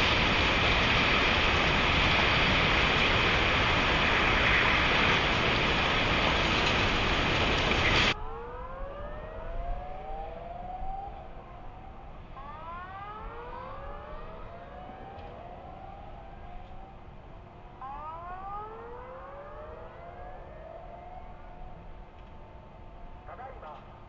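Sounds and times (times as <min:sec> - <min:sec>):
warning sirens rising: 0:00.0 - 0:24.0.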